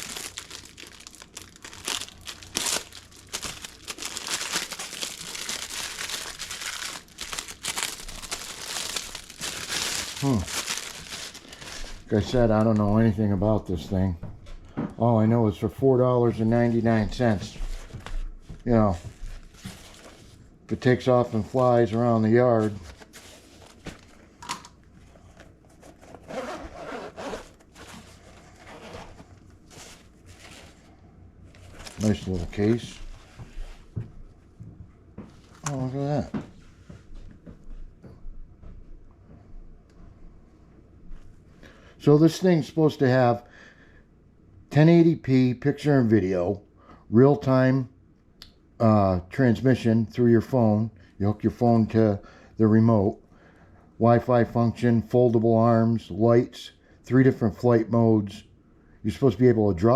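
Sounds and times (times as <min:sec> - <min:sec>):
plastic bag crinkling: 0:00.0 - 0:12.8, 0:31.5 - 0:33.0
zipper being pulled open: 0:26.1 - 0:27.6.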